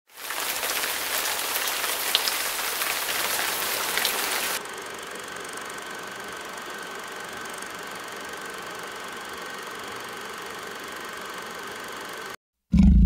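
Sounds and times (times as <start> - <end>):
rain-like hiss: 0.1 - 4.6.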